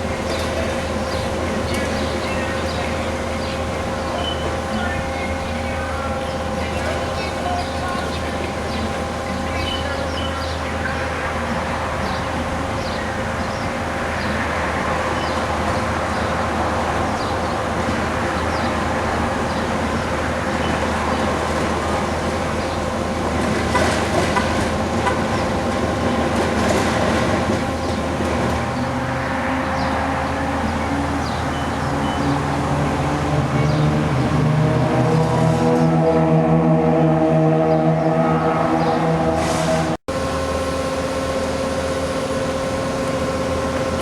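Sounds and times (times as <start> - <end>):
diesel engine running under load: 0.0 - 44.0.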